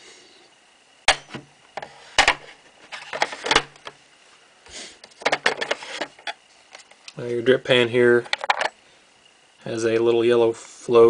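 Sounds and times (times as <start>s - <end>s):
plastic clicks and knocks: 5.1s - 6.4s, 8.2s - 8.7s.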